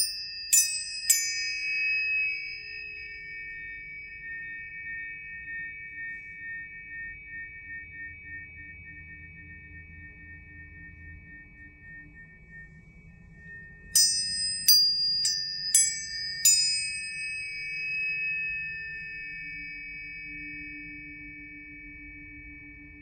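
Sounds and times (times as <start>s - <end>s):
tuning fork strikes: 0.0s - 23.0s
tuning forks ringing: 0.0s - 23.0s.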